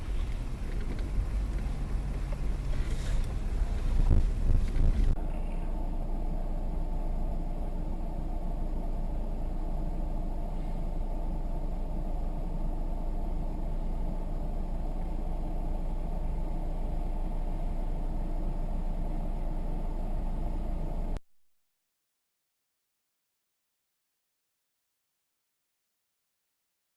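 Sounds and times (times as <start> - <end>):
car engine and road rumble: 0.0 - 21.2.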